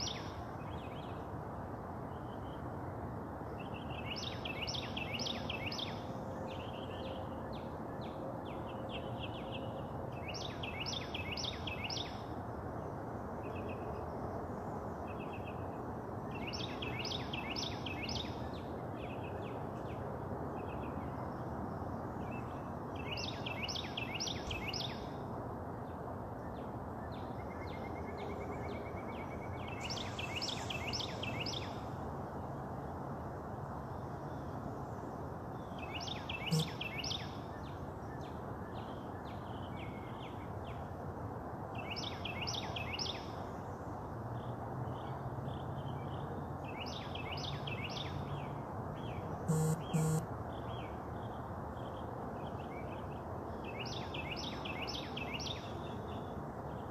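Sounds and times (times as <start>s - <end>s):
outdoor background rush: 0.0s - 56.9s
soft bird chirps: 36.0s - 37.3s, 49.5s - 50.8s.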